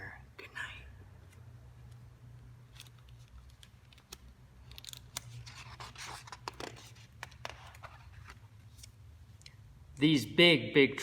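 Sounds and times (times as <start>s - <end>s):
paper pages rustling and turning: 2.6s - 9.0s.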